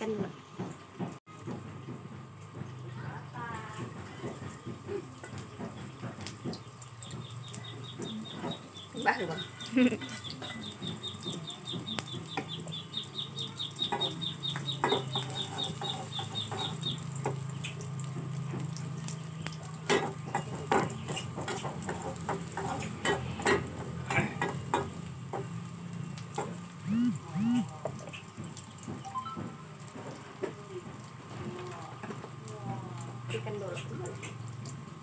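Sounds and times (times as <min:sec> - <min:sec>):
food sizzling in hot oil: 0:02.2 - 0:35.0
fast high chirps: 0:26.8 - 0:27.7.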